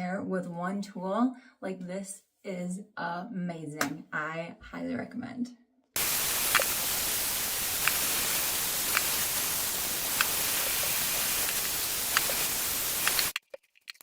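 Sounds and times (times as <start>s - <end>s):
hot air styler blowing: 6.0s - 13.4s
faint ticks: 8.9s - 9.4s.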